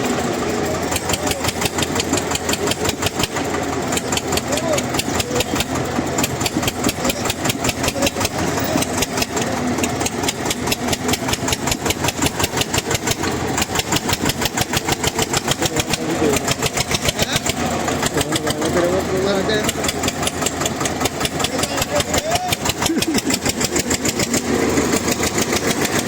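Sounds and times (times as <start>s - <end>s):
tractor engine running hard: 0.0s - 26.0s.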